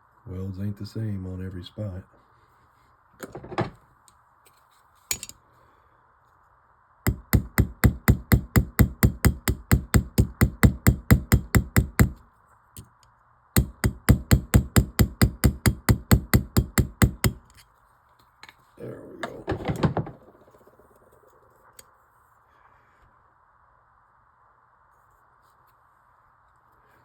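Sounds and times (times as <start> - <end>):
small hammer tapping rapidly: 7.1 - 12.2, 13.6 - 17.5.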